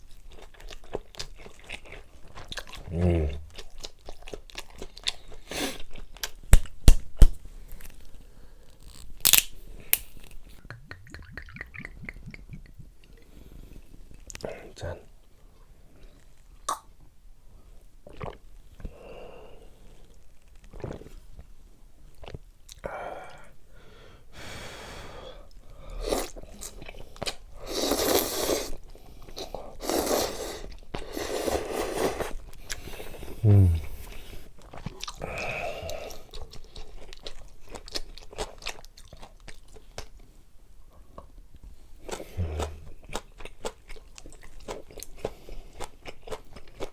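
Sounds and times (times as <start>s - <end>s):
person chewing and crunching food: 0.0s - 14.4s, 25.4s - 40.4s, 41.0s - 46.9s
wet mouth sounds: 9.3s - 13.2s, 16.6s - 16.9s, 29.4s - 36.6s, 42.0s - 43.8s.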